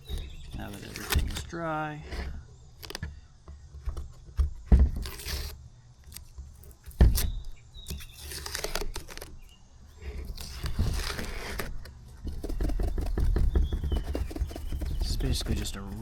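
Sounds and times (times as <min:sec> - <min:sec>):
cloth rubbing on plastic: 0:10.2 - 0:16.0.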